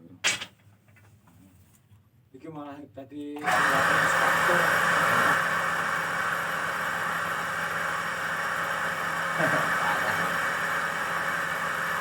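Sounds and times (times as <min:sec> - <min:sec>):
machine motor humming and whirring: 0:03.4 - 0:12.0.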